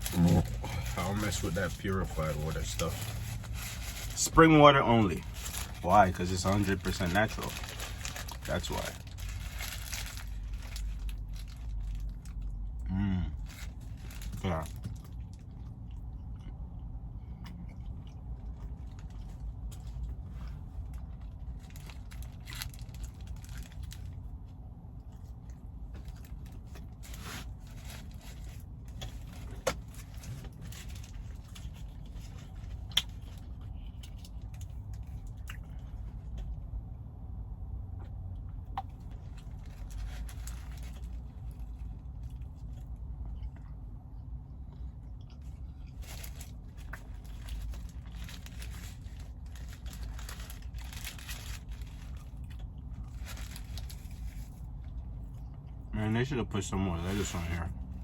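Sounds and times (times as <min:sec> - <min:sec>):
steady low hum: 0:00.0 - 0:58.0
person chewing food: 0:12.0 - 0:21.6, 0:41.0 - 0:48.1.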